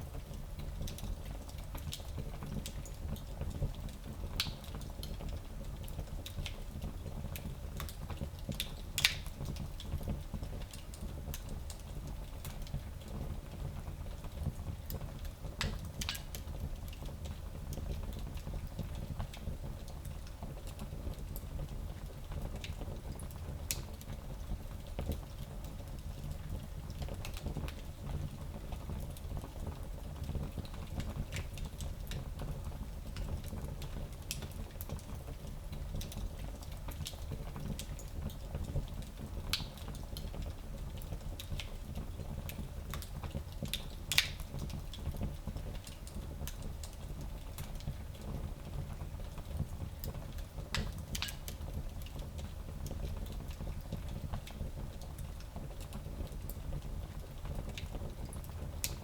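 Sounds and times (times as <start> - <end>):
fire crackling and popping: 0.0 - 59.0.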